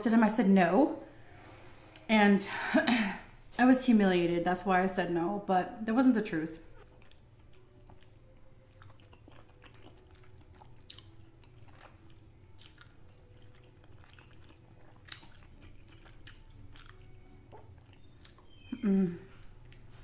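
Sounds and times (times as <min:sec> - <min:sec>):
chewing and wet mouth sounds: 0:06.7 - 0:20.0.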